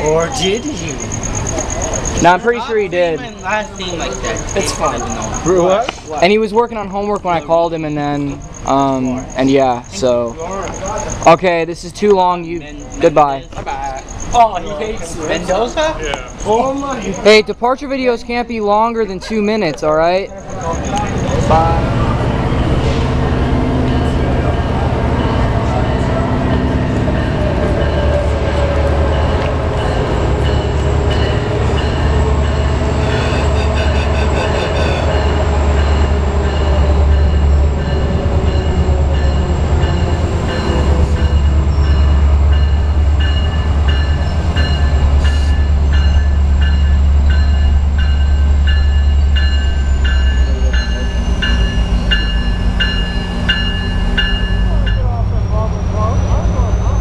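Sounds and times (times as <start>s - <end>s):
train low rumble: 0.0s - 57.0s
regular ringing strikes: 23.3s - 33.6s, 34.3s - 55.2s.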